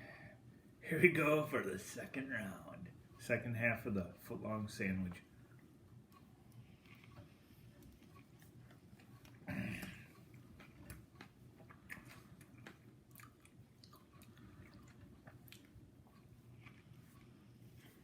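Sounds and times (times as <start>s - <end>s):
steady low hum: 0.0s - 18.0s
chewing sandwich: 6.6s - 7.2s, 10.2s - 18.0s.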